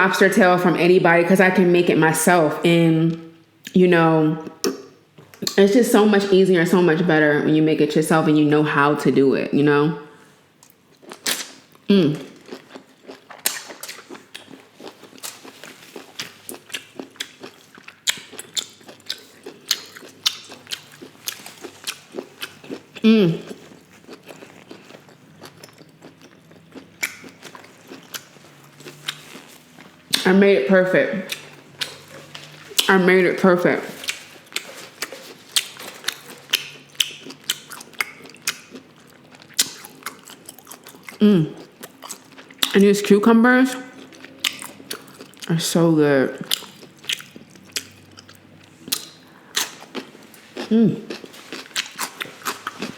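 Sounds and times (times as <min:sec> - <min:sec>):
close chewing and biting food: 0:10.6 - 0:30.3, 0:31.2 - 0:32.9, 0:33.9 - 0:42.8, 0:43.7 - 0:45.5, 0:46.4 - 0:52.9.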